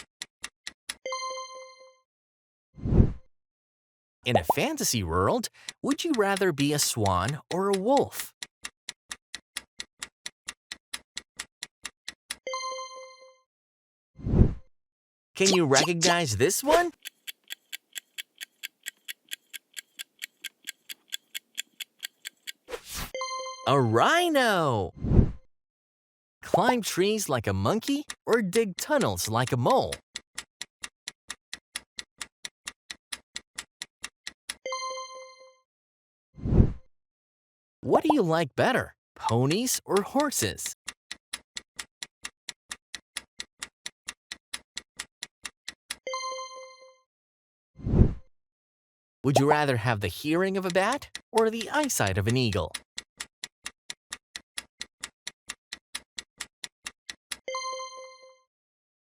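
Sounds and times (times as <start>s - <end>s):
clock ticking: 4.3s - 12.0s, 15.4s - 22.7s, 26.5s - 30.5s, 39.2s - 43.7s, 49.3s - 53.8s.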